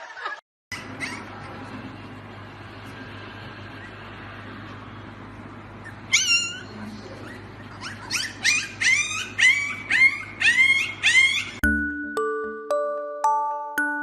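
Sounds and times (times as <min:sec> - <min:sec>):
puppy yipping: 0:00.7 - 0:01.6, 0:05.8 - 0:11.6.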